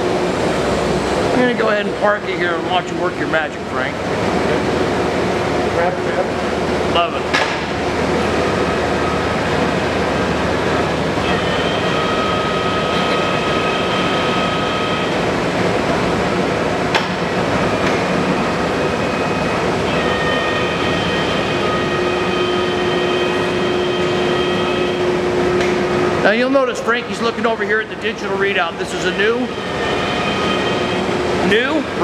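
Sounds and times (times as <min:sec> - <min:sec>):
lathe running: 0:00.0 - 0:32.0
high whining tones: 0:06.5 - 0:32.0.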